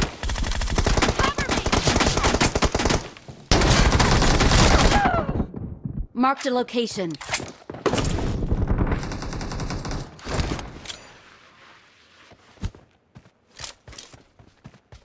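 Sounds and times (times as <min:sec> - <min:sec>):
video game automatic gunfire: 0:00.0 - 0:05.0, 0:08.6 - 0:10.4.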